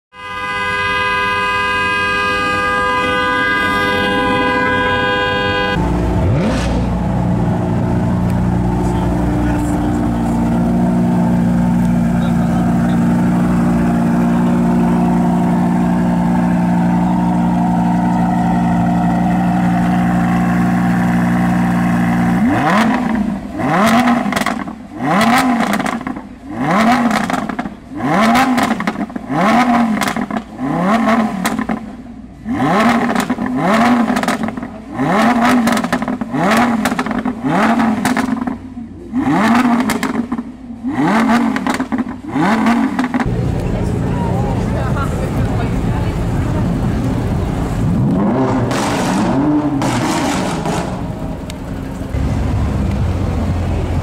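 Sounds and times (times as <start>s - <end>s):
sports car engine idling: 0.4s - 54.0s
engine revving: 0.8s - 54.0s.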